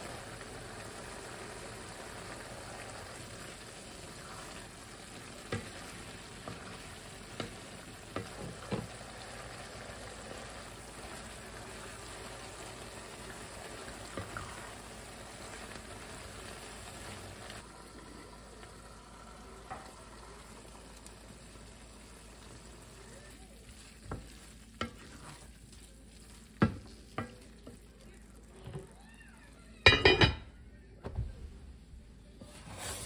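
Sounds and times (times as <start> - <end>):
meat and potato sizzling: 0.0 - 29.0
wooden spoon stirring: 1.4 - 17.6, 21.7 - 28.9.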